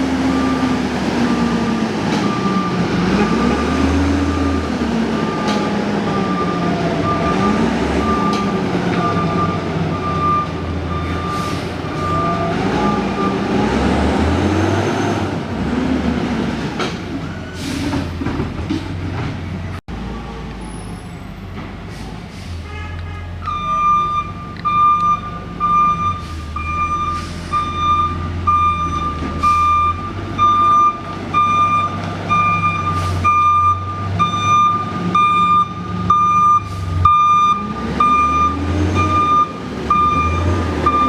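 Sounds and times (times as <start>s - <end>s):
diesel engine revving: 0.0s - 41.0s
reversing alarm beeping: 2.2s - 4.0s, 5.2s - 13.6s, 23.5s - 41.0s.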